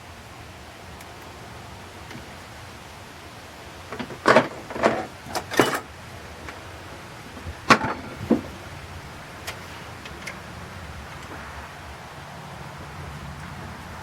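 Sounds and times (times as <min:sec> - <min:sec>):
metal tools knocking and clattering: 0:04.0 - 0:05.9, 0:07.7 - 0:08.6.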